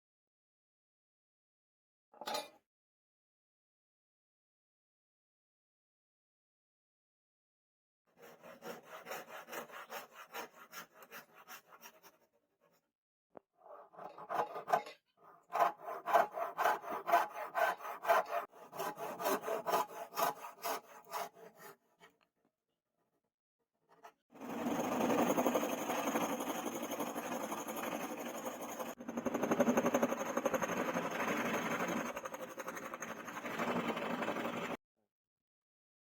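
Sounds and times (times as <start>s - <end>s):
rhythmic hand sawing or filing: 8.1s - 12.3s, 13.6s - 22.1s, 24.4s - 34.8s.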